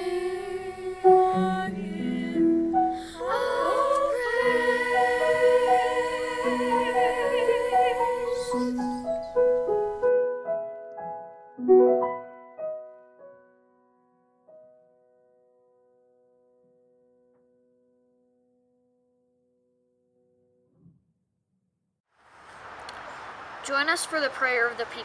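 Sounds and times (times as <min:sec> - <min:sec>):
person singing with vibrato: 0:00.0 - 0:09.6
piano: 0:00.0 - 0:20.6.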